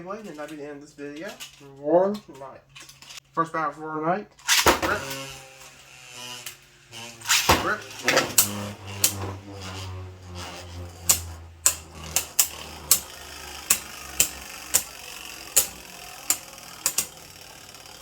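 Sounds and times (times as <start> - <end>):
low hum: 6.9 - 16.3
spinning tops clacking: 7.1 - 18.0.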